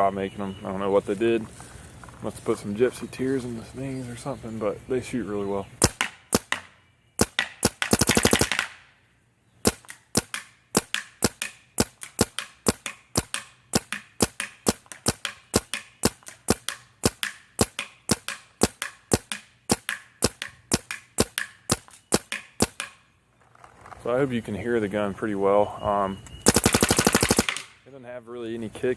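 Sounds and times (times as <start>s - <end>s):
paintball marker firing: 5.8s - 8.9s, 9.6s - 23.0s, 26.5s - 27.8s.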